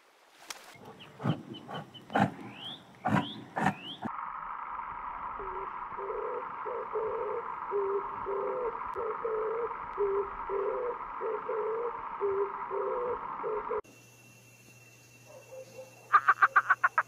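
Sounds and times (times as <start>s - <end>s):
short low hooting calls: 0.8s - 4.1s.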